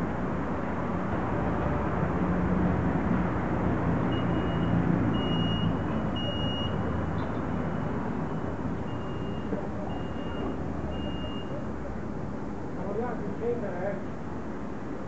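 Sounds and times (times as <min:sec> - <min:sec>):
high electronic warning beep: 0:04.2 - 0:06.9, 0:07.6 - 0:11.6.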